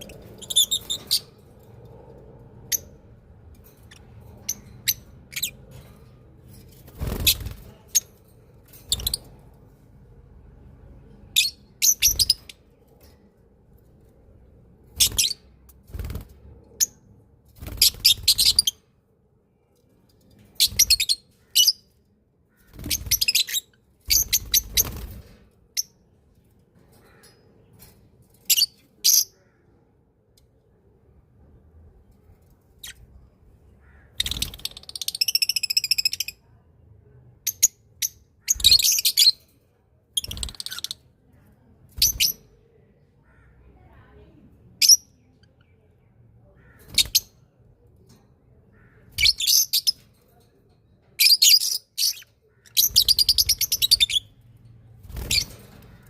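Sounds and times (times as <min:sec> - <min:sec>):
small birds chirping: 0:00.0 - 0:01.8, 0:20.0 - 0:26.1, 0:32.2 - 0:36.6, 0:48.6 - 0:50.4, 0:51.2 - 0:56.0.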